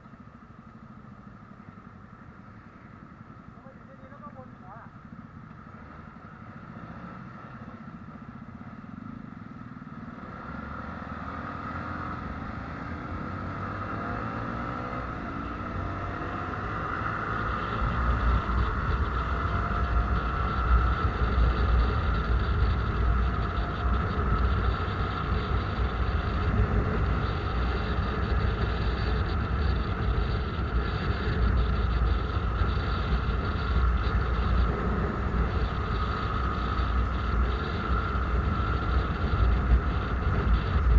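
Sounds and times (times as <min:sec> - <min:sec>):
vehicle speeding up: 0:10.0 - 0:40.9.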